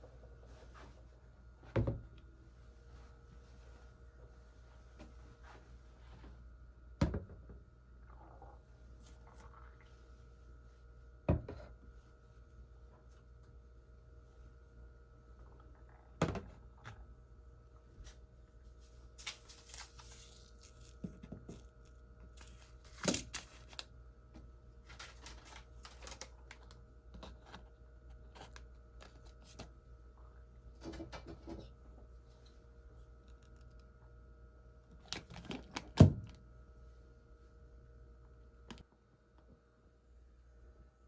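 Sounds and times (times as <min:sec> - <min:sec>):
faint appliance hum: 0:00.0 - 0:41.0.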